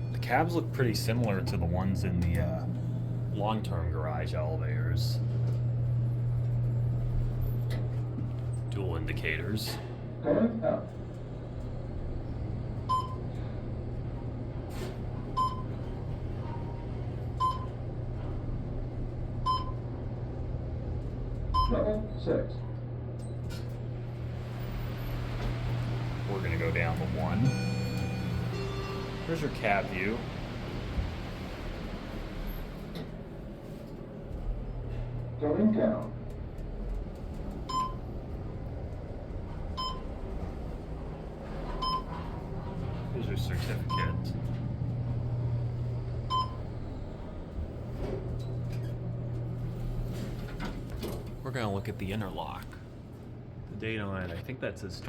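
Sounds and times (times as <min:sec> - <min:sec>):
elevator humming: 0:00.0 - 0:54.9
elevator short beeps: 0:12.8 - 0:13.3, 0:15.3 - 0:16.8, 0:17.4 - 0:17.8, 0:19.4 - 0:19.8, 0:21.5 - 0:21.8, 0:26.5 - 0:30.5, 0:37.7 - 0:38.0, 0:39.8 - 0:40.2, 0:41.6 - 0:42.4, 0:43.5 - 0:44.4, 0:46.2 - 0:46.7
short high beeps: 0:27.4 - 0:29.3.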